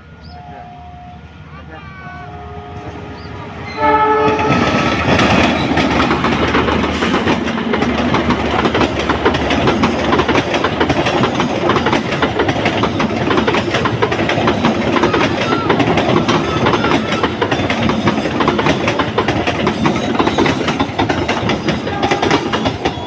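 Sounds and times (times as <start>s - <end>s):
train horn blast: 0.2s - 5.0s, 21.7s - 23.0s
train wheels clattering on rails: 3.9s - 23.0s.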